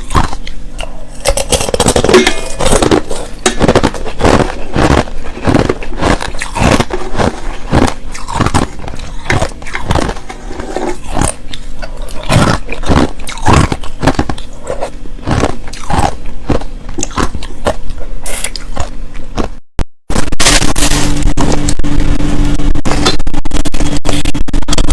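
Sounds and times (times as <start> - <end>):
ice crunching while chewed: 0.0 - 19.6
steady sound: 0.2 - 18.2, 18.8 - 24.9.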